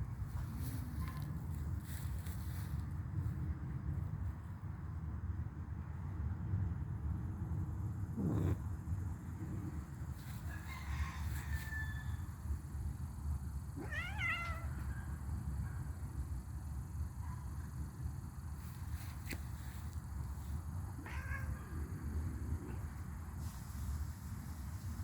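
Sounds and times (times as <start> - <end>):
steady low rumble: 0.0 - 25.0
kitten meowing: 13.8 - 14.8.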